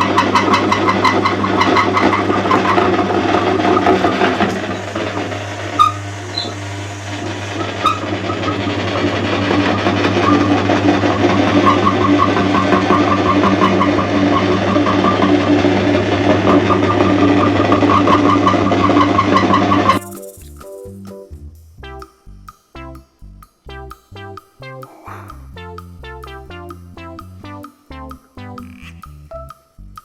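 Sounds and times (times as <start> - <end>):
meat grinder motor hum: 0.0 - 19.8.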